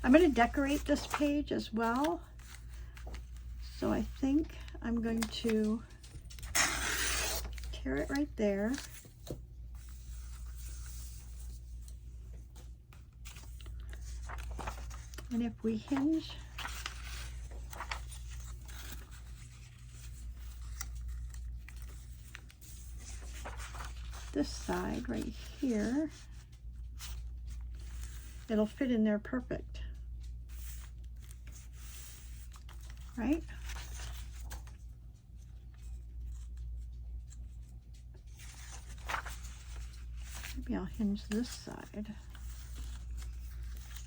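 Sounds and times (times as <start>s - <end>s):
low hum: 0.0s - 28.5s, 29.8s - 44.0s
paper rustling and tapping: 0.0s - 28.9s, 30.1s - 44.0s.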